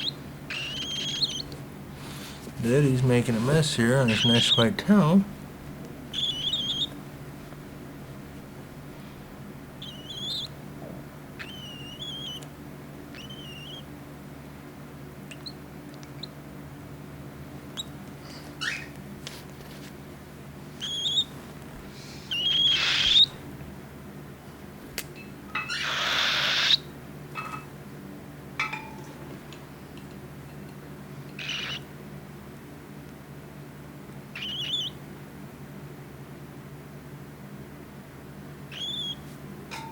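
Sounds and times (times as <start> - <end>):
cockatiel chick chirping: 0.0 - 2.4, 4.0 - 4.7, 6.1 - 7.0, 9.8 - 10.6, 11.4 - 12.5, 13.1 - 13.9, 18.6 - 18.9, 20.8 - 21.3, 22.3 - 23.4, 25.6 - 26.9, 31.3 - 31.9, 34.3 - 35.0, 38.7 - 39.2.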